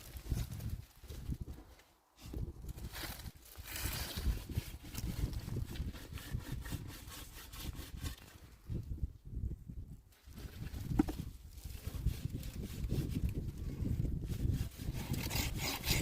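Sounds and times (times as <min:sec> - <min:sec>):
rough scraping on wood: 0:02.9 - 0:08.5, 0:10.3 - 0:16.0.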